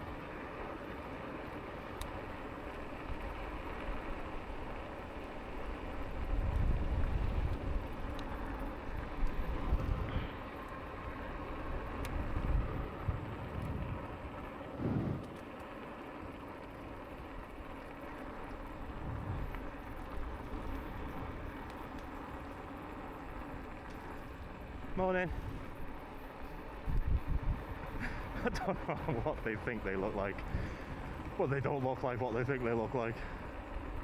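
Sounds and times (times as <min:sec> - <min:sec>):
bike tyres rumbling on path: 0:00.0 - 0:34.0
wind buffeting microphone: 0:03.0 - 0:10.4, 0:11.5 - 0:15.4, 0:18.6 - 0:21.7, 0:23.6 - 0:32.5.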